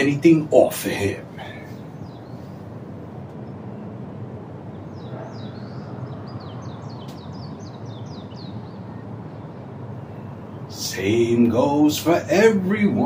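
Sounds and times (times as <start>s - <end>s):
low outdoor hum: 0.0s - 13.0s
bird chirping rapidly: 4.7s - 9.6s.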